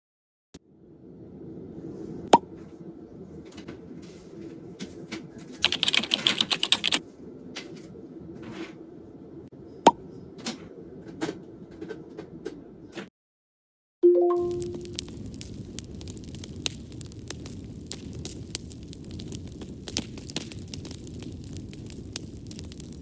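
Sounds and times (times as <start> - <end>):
keyboard typing: 5.6 - 7.0
low steady hum: 14.0 - 19.9.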